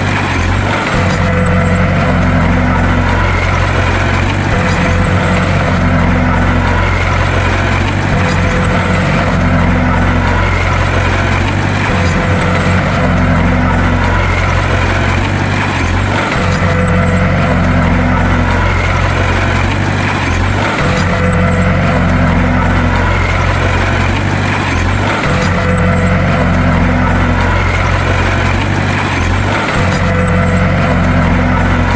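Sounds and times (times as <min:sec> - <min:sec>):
bulldozer diesel engine droning: 0:00.0 - 0:31.9.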